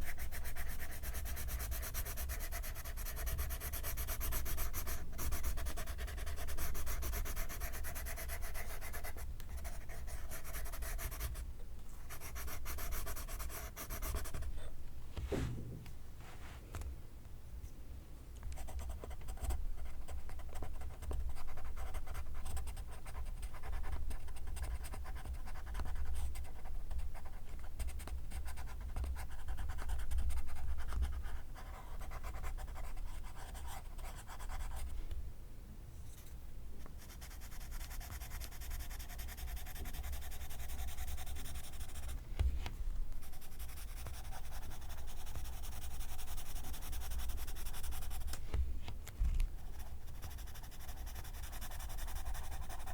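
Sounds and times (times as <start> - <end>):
pencil scratching on paper: 0.0 - 11.4, 12.1 - 14.5, 37.0 - 42.2, 43.2 - 48.3, 49.6 - 52.9.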